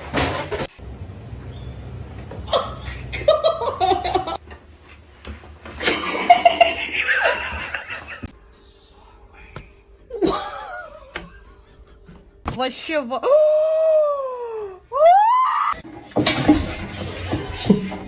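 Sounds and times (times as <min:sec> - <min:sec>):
human laughter: 0:02.5 - 0:04.4, 0:05.8 - 0:08.3, 0:10.1 - 0:12.2.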